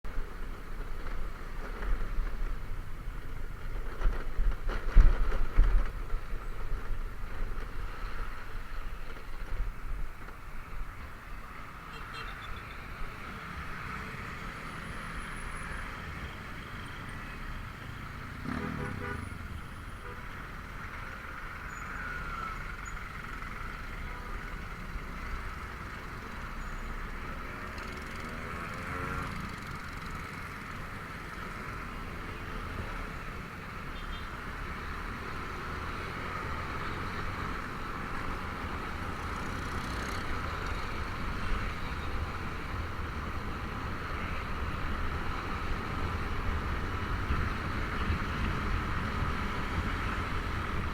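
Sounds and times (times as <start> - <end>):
road and traffic noise: 0.0 - 50.9
wind rumble on microphone: 40.8 - 50.9.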